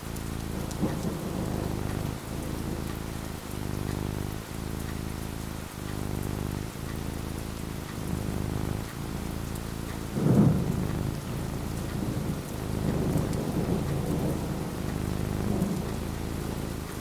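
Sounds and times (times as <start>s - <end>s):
rain falling: 0.0s - 17.0s
thunder rumbling: 0.5s - 3.8s, 10.0s - 17.0s.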